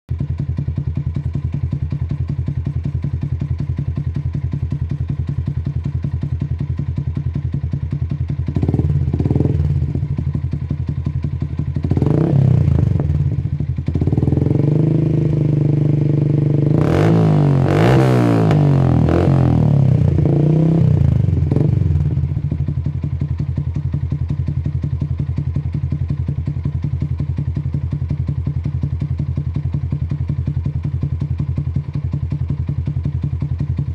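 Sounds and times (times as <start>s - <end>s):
motorcycle engine idling and revving: 0.1s - 33.9s.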